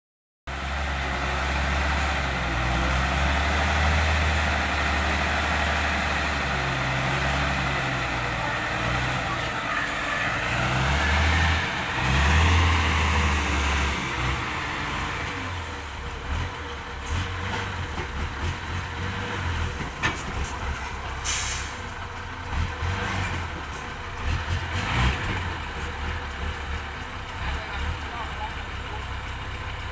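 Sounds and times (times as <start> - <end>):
truck engine running: 0.5 - 29.9
air hiss: 21.2 - 21.8.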